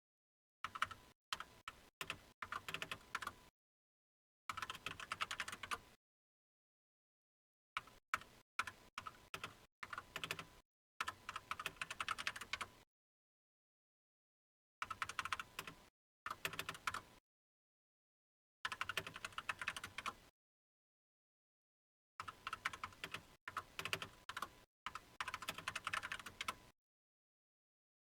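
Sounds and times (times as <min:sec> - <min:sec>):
computer keyboard typing: 0:00.6 - 0:03.4, 0:04.5 - 0:05.9, 0:07.8 - 0:12.8, 0:14.8 - 0:17.1, 0:18.7 - 0:20.2, 0:22.2 - 0:26.6.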